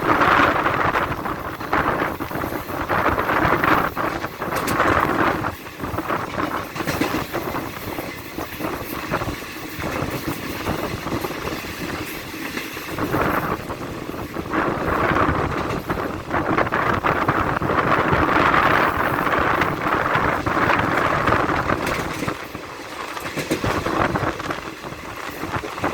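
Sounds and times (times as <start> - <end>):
train wheels rattling on track: 0.0 - 25.9.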